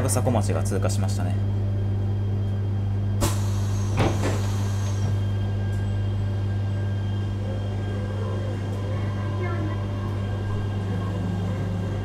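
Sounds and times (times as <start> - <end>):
train cabin low hum: 0.0 - 12.0.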